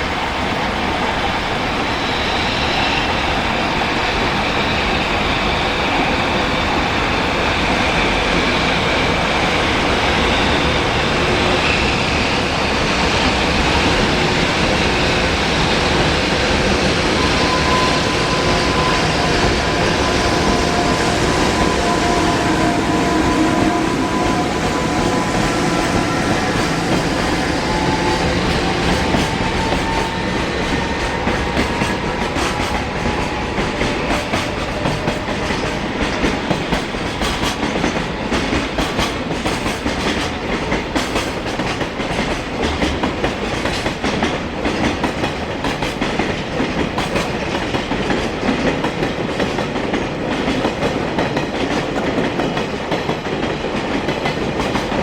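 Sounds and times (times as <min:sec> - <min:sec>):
freight train passing: 0:00.0 - 0:55.0
wheels clacking over rail joints: 0:21.6 - 0:55.0.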